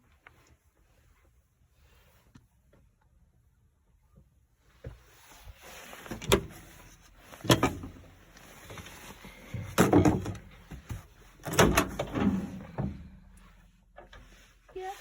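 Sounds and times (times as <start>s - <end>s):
hatches and doors knocking and clunking: 9.5s - 13.1s.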